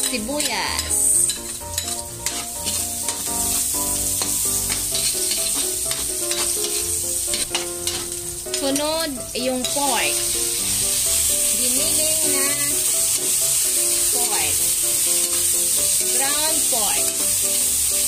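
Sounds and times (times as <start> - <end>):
spatula scraping pan: 0.0 - 8.8
onion sizzling in hot oil: 0.0 - 18.0.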